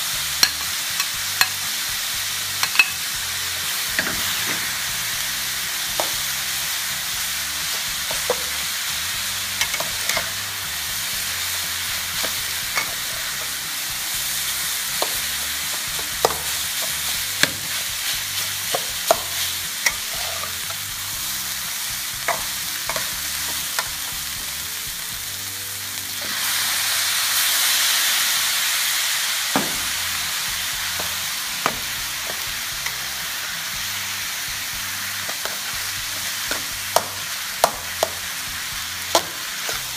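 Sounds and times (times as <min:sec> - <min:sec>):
rice and sausage sizzling in wok: 0:00.0 - 0:39.9
metal spatula scraping a pan: 0:02.5 - 0:05.2, 0:09.5 - 0:10.6, 0:14.4 - 0:21.6.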